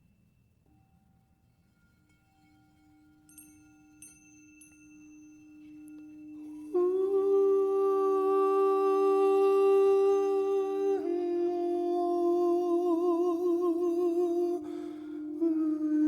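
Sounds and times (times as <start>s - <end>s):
light chime strikes: 1.7s - 7.3s
sustained hummed vocal tone: 6.6s - 16.0s.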